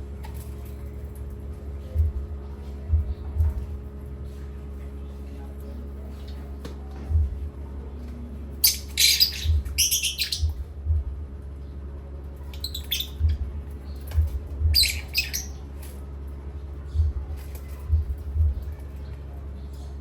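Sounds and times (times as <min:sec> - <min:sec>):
steady low hum: 0:00.0 - 0:20.0
parrot squawking: 0:08.6 - 0:10.5, 0:12.6 - 0:13.2, 0:14.8 - 0:15.6.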